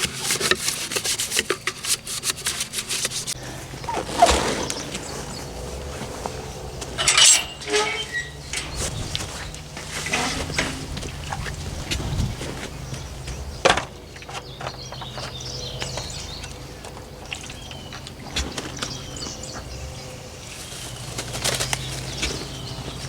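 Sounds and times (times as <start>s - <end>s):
knocks and rustling: 0.0s - 15.4s
hens calling: 3.4s - 13.7s.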